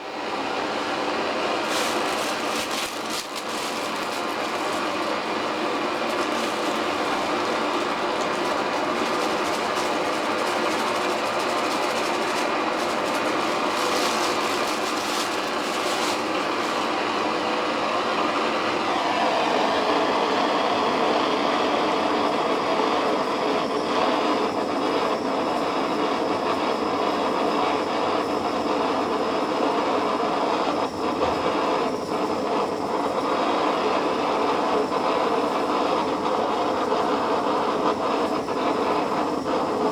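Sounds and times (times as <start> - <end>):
blowtorch flame hissing: 0.0 - 21.3
crackling: 0.8 - 17.4.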